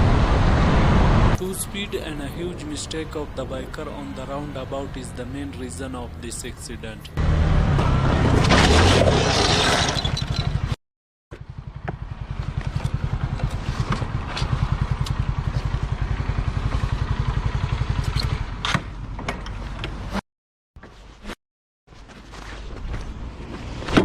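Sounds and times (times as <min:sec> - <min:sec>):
rush of noise: 0:00.0 - 0:03.4
motorcycle engine running: 0:11.3 - 0:20.0.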